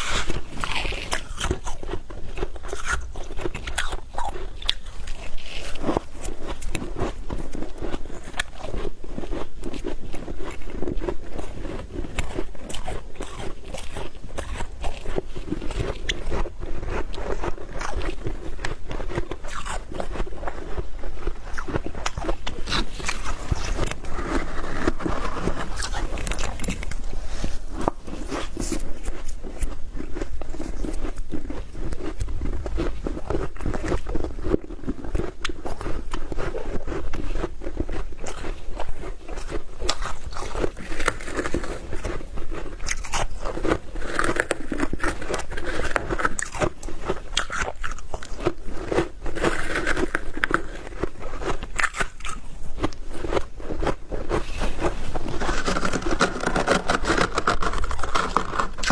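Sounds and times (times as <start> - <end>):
frost crunching: 0.0 - 58.9.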